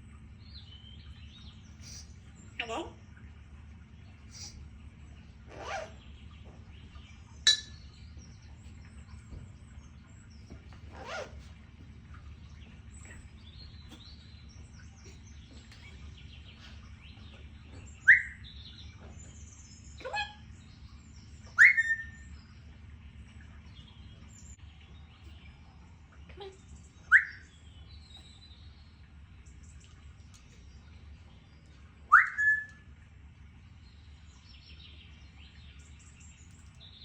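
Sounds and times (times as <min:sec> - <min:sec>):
low hum: 0:00.0 - 0:37.0
parrot soft chirps: 0:18.0 - 0:18.4, 0:21.5 - 0:22.3, 0:27.1 - 0:27.5, 0:32.1 - 0:32.8
parrot whistling: 0:21.6 - 0:22.2, 0:27.1 - 0:27.4, 0:32.1 - 0:32.8.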